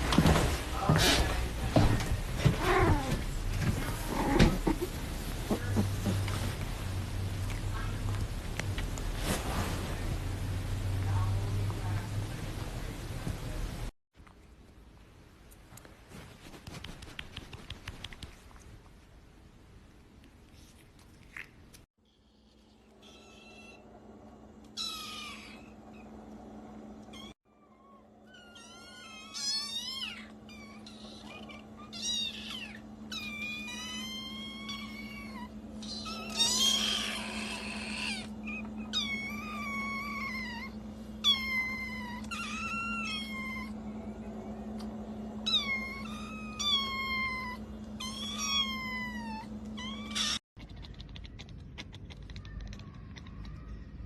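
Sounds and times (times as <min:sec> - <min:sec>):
steady low hum: 0:00.0 - 0:54.0
cat meowing: 0:28.3 - 0:43.7, 0:45.5 - 0:53.7.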